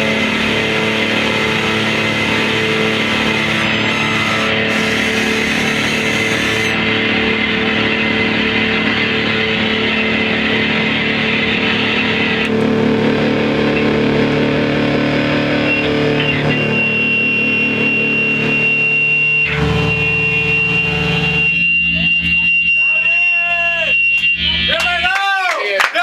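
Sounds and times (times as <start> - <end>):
droning tones: 0.0 - 23.1
distorted guitar-like noise: 0.0 - 24.8.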